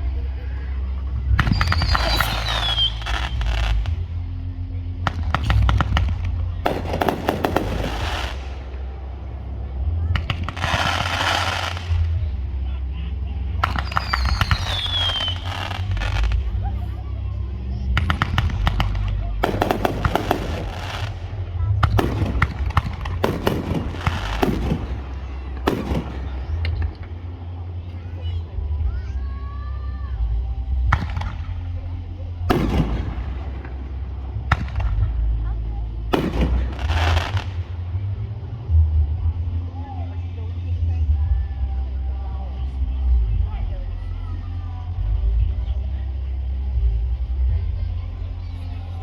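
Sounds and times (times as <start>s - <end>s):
steady low rumble: 0.0s - 49.0s
fireworks crackling pops: 1.3s - 4.2s, 5.0s - 9.0s, 10.1s - 12.3s, 13.6s - 16.7s, 17.9s - 27.3s, 30.8s - 31.8s, 32.5s - 35.5s, 36.1s - 37.9s.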